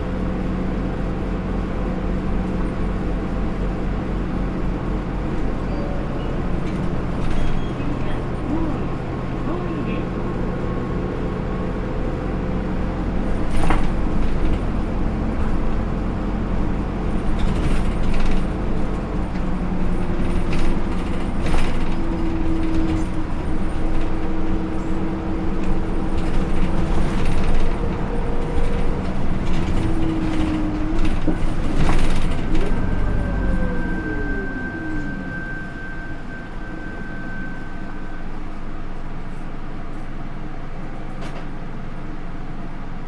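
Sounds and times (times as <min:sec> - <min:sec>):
knocks and rattles from bus body: 0:00.0 - 0:34.7, 0:39.2 - 0:43.0
bus diesel engine drone: 0:00.0 - 0:43.0
transmission whine: 0:17.6 - 0:39.4.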